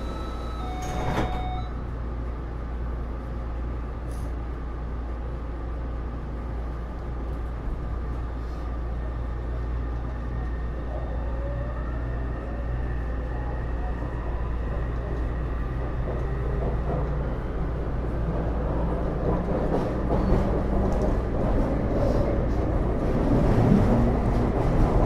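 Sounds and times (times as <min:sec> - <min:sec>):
steady inverter tones: 0:00.0 - 0:01.8
rising inverter whine: 0:00.0 - 0:01.9
wheels rumbling on rail: 0:00.0 - 0:25.0.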